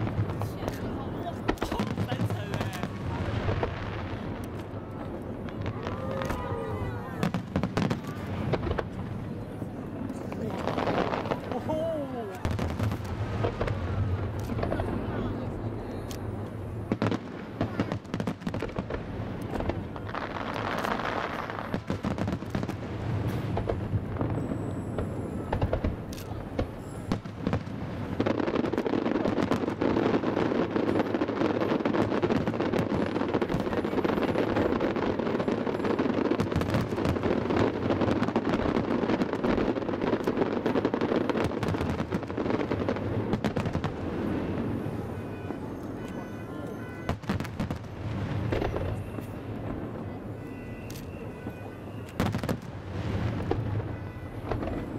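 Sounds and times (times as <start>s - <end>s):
fireworks bangs and crackling: 0.0s - 54.9s.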